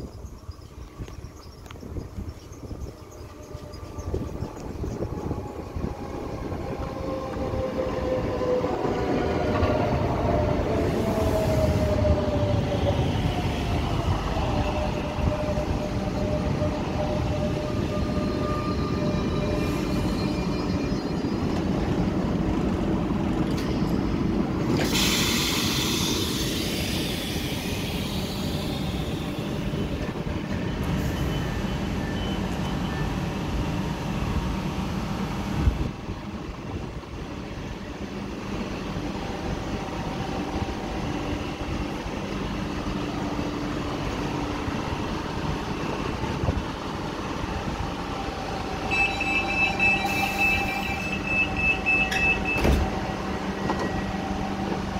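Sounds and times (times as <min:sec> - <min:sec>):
hiss: 0:24.7 - 0:29.8
short high beeps: 0:48.9 - 0:52.6
train doors clunk: 0:48.9 - 0:54.9.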